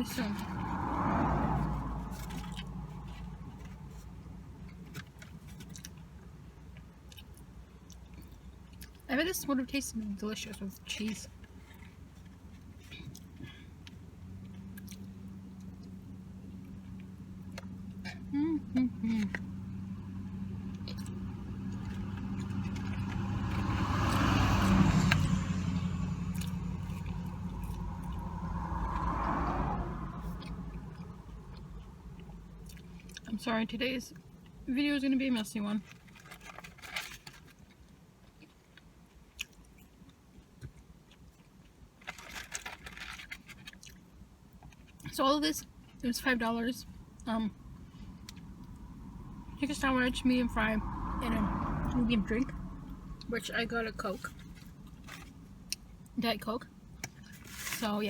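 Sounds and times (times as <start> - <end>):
car driving past: 0.0 - 4.2, 19.3 - 32.6, 47.6 - 55.5
chewing crispy food: 35.8 - 45.1.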